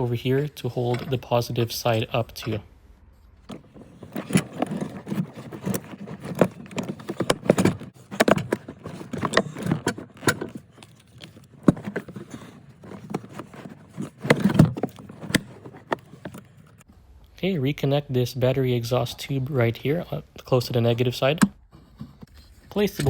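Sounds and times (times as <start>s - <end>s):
hands rattling car parts: 3.4s - 16.9s.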